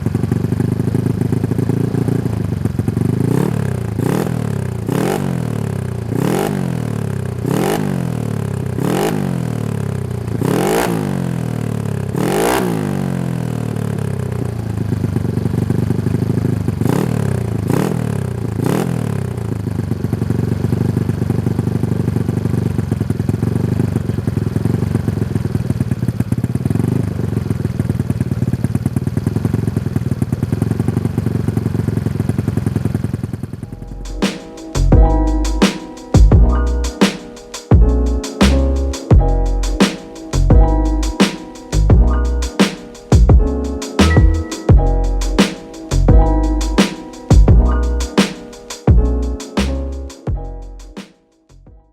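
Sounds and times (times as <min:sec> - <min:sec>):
scooter engine idling: 0:00.0 - 0:35.6
scooter engine revving: 0:00.0 - 0:36.4.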